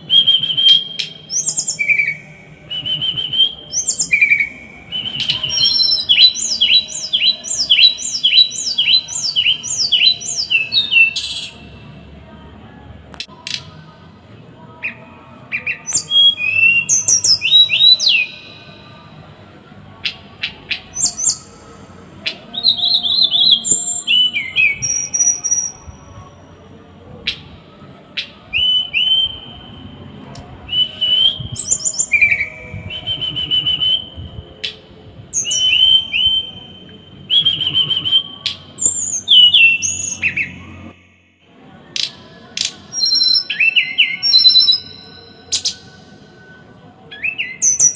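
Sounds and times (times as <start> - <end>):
songbird chattering song: 0.3 - 11.7, 15.6 - 18.5.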